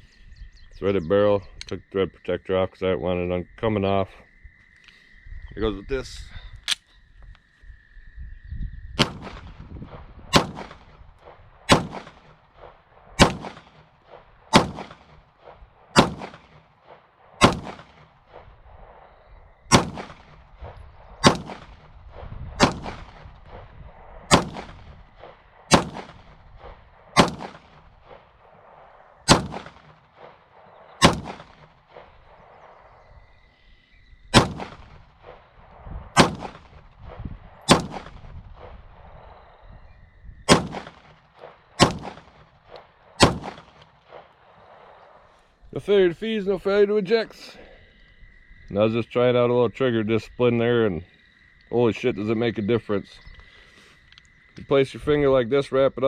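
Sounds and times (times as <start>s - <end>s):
pistol shots with echo: 9.0s - 18.5s, 19.7s - 23.6s, 24.3s - 32.7s, 34.3s - 35.5s, 36.2s - 36.9s, 37.7s - 38.7s, 40.5s - 45.0s.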